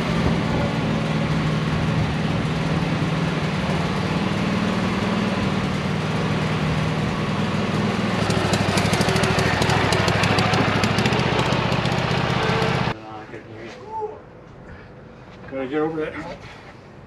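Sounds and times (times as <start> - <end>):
engine running: 0.0 - 13.0
fast rattle: 8.2 - 12.9.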